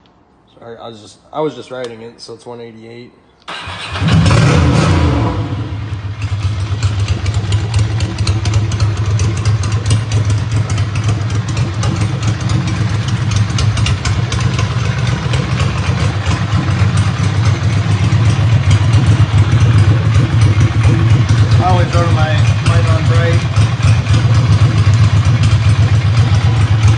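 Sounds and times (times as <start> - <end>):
motorcycle engine idling: 5.4 - 26.9.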